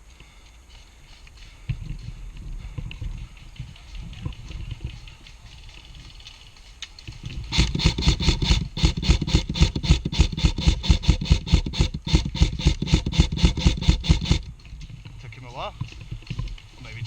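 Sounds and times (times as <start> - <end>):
airsoft rifle rapid shots: 7.3 - 14.5.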